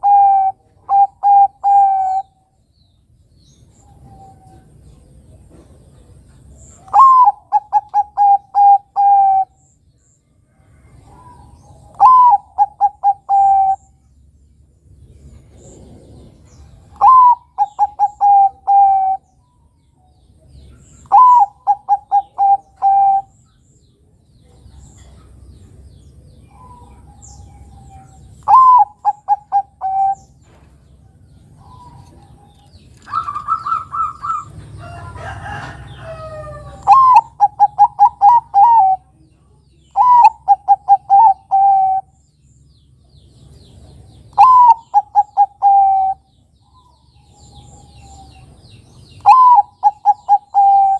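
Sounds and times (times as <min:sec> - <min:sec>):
dove cooing: 0:00.0 - 0:02.4, 0:06.8 - 0:09.6, 0:11.0 - 0:13.9, 0:15.5 - 0:19.3, 0:21.0 - 0:23.4, 0:26.4 - 0:30.5, 0:31.5 - 0:39.2, 0:39.9 - 0:42.2, 0:44.3 - 0:48.5, 0:49.2 - 0:50.9.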